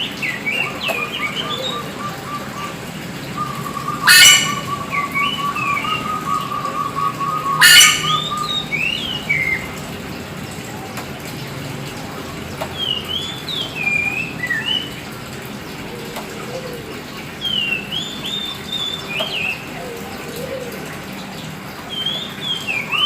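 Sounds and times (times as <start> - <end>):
bird singing whistled phrases: 3.4 - 9.7, 17.5 - 19.6, 21.9 - 23.0.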